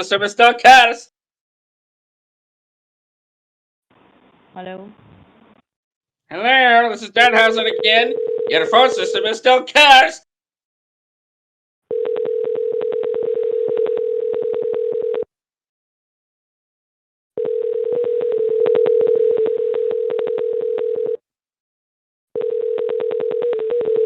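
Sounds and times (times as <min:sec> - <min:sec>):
telephone ringing tone: 0:07.3 - 0:09.3, 0:11.9 - 0:15.3, 0:17.4 - 0:21.2, 0:22.4 - 0:24.0.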